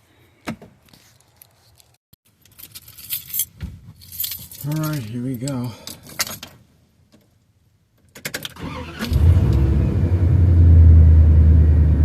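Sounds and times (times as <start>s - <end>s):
van engine cranking and running: 8.3s - 12.0s.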